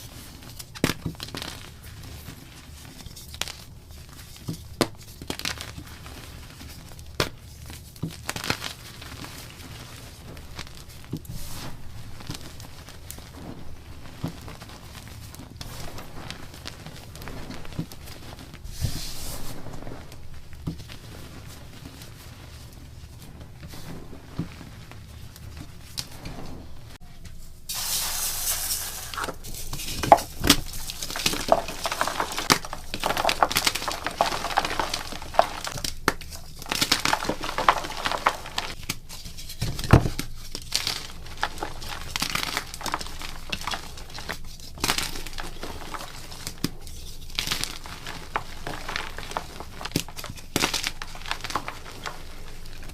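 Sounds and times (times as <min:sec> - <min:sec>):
chalk being crushed: 0:27.7 - 0:52.9.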